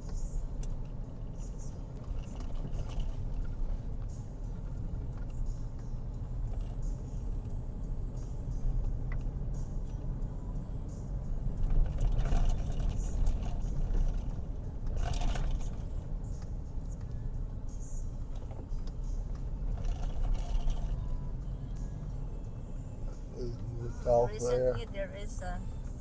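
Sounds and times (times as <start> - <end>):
car engine and tyres rumbling: 0.0 - 26.0
short rattles: 11.6 - 16.1, 19.6 - 21.1.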